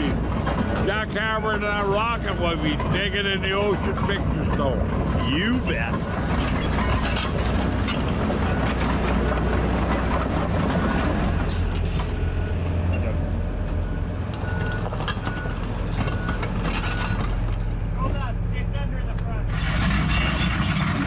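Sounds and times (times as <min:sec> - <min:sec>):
metal clanks and rattles: 0:00.0 - 0:12.8, 0:13.6 - 0:18.3, 0:19.5 - 0:21.0
excavator diesel engine running: 0:00.0 - 0:21.0.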